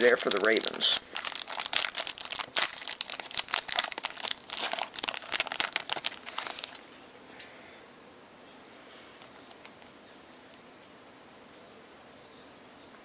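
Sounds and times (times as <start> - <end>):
card pack wrapper crinkling: 0.0 - 6.8.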